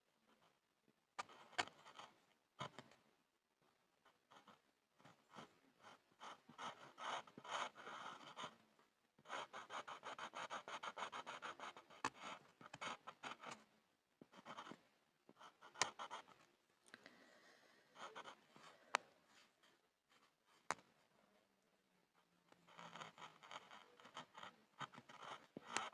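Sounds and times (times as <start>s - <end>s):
pencil scribbling on a board: 4.1s - 8.6s, 9.2s - 16.4s, 18.0s - 18.5s, 22.6s - 25.9s.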